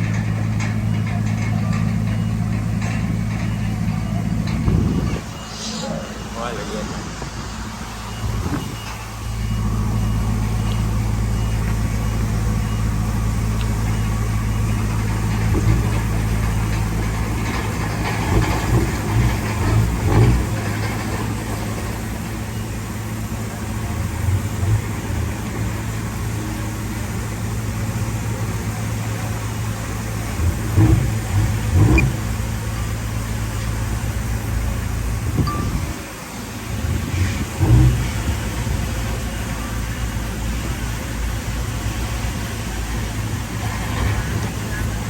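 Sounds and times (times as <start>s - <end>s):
metal clanks and rattles: 0.0s - 5.4s, 14.6s - 22.4s
bulldozer diesel engine running: 0.0s - 45.0s.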